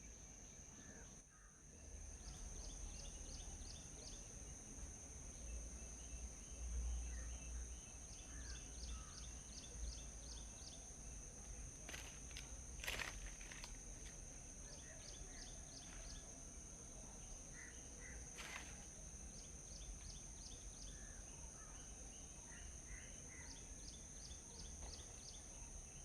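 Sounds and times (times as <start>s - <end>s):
rustle: 2.2s - 16.9s, 17.5s - 25.8s
small birds chirping: 5.3s - 16.4s.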